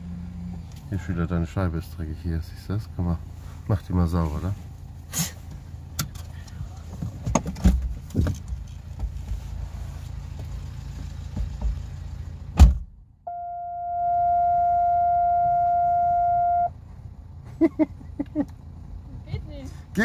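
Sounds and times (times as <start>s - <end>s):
car engine idling: 0.0s - 20.0s
electronic beep tone: 13.3s - 16.7s.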